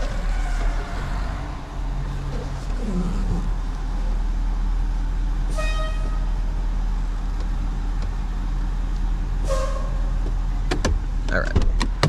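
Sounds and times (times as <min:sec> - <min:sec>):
truck engine running: 0:00.0 - 0:12.0
short horn-like beep: 0:09.5 - 0:10.1.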